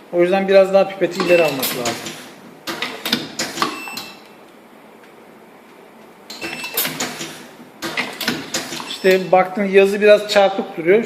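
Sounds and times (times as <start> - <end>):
pad printing machine clacking: 1.2 - 4.1, 6.3 - 9.3.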